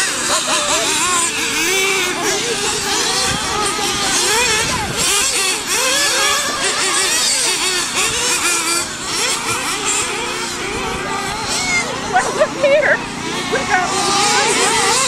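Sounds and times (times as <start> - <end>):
rc car engines revving: 0.0 - 15.0.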